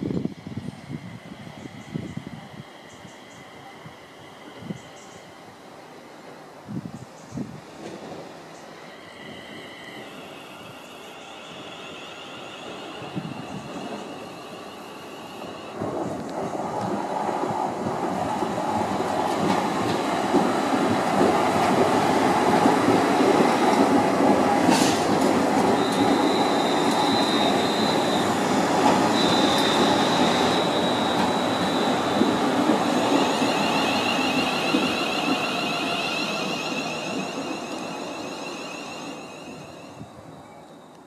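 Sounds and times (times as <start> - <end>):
train running noise: 0.0 - 41.0
high wheel squeal: 8.8 - 15.8, 24.7 - 41.0.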